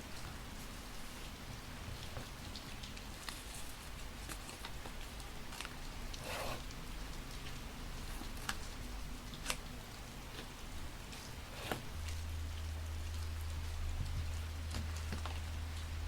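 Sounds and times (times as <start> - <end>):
paper rustling: 0.0 - 12.3
sharp ticks of paper handling: 0.0 - 16.0
steady rain falling: 0.0 - 16.0.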